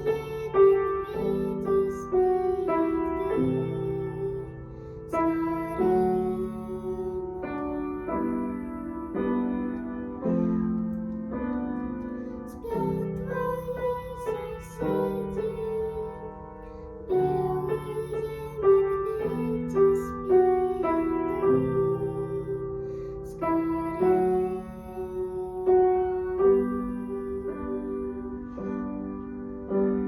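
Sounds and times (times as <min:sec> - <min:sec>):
slow piano melody: 0:00.0 - 0:30.0.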